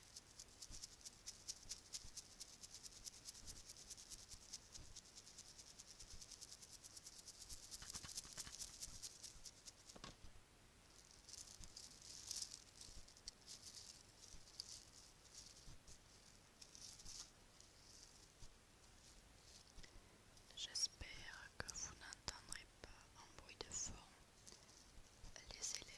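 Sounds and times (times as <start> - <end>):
bracelets rattling: 10.9 - 18.3.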